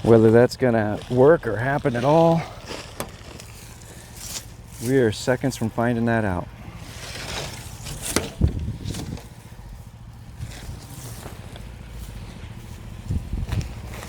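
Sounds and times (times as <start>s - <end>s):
excavator engine running: 0.0s - 14.0s
knocks and clunks: 7.4s - 9.3s.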